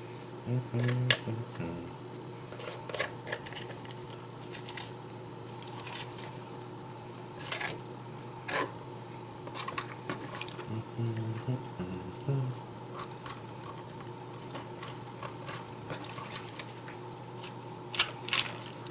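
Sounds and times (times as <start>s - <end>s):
faint steady hum: 0.0s - 18.9s.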